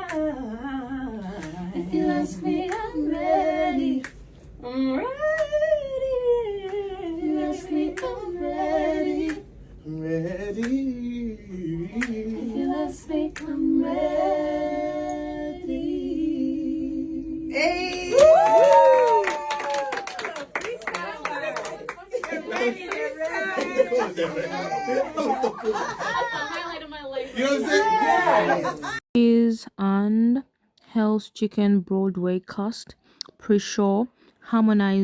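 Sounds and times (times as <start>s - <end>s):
group singing a cappella: 0.0s - 17.6s.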